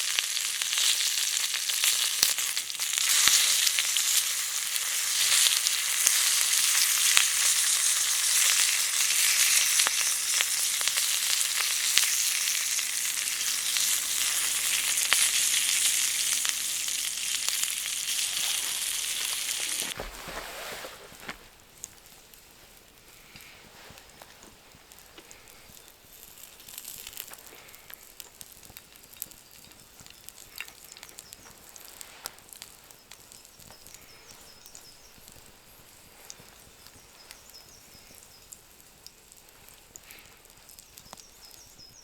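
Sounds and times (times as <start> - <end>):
food sizzling in a pan: 0.0 - 20.0.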